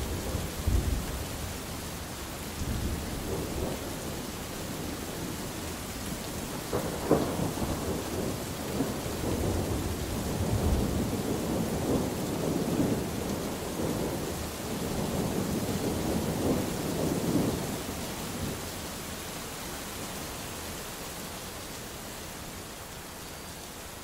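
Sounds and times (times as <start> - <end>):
thunder rumbling: 0.0 - 1.8, 2.6 - 5.5, 6.1 - 18.6
steady rain: 0.0 - 24.0.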